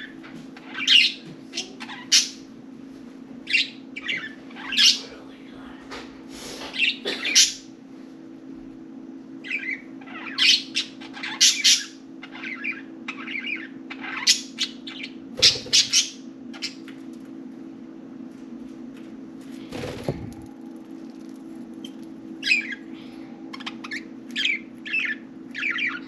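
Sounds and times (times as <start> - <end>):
budgerigars chirping: 0.0 - 2.5, 3.5 - 5.0, 9.4 - 16.9, 21.8 - 22.9, 23.5 - 26.0
steady low hum: 0.0 - 26.0.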